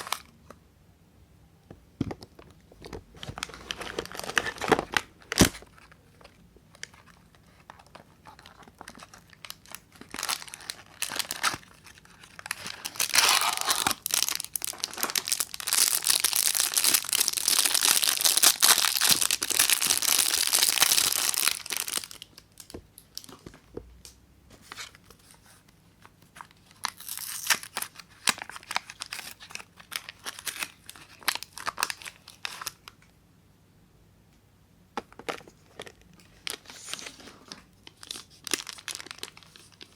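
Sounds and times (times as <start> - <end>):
wrapper crinkling and tearing: 0.0 - 0.3, 3.2 - 23.4, 26.4 - 32.9, 35.4 - 39.9.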